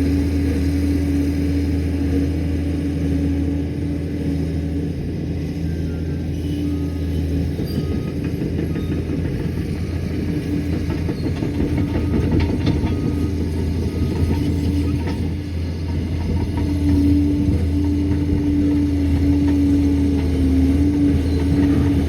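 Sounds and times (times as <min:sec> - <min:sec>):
dozer engine drone with whine: 0:00.0 - 0:22.0
steel tracks clattering: 0:07.5 - 0:22.0.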